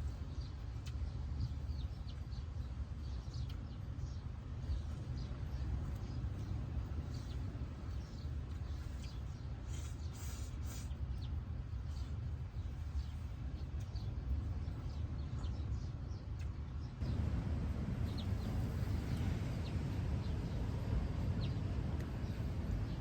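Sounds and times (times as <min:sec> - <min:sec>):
small birds chirping: 0:00.0 - 0:23.0
steady low rumble: 0:00.0 - 0:23.0.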